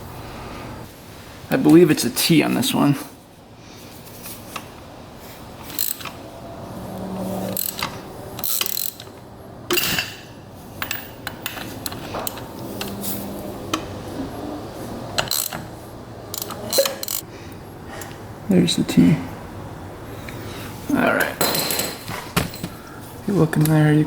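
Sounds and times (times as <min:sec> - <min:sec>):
ratchet wrench clicking: 0:05.6 - 0:06.2, 0:07.5 - 0:09.2, 0:15.2 - 0:15.7, 0:16.3 - 0:17.2
metal clinks: 0:09.7 - 0:13.0.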